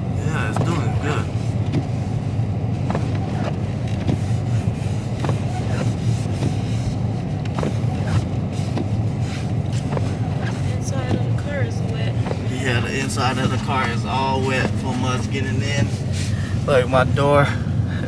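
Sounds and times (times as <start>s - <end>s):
car engine low rumble: 0.0s - 18.0s
tyres on snowy road: 0.0s - 18.0s.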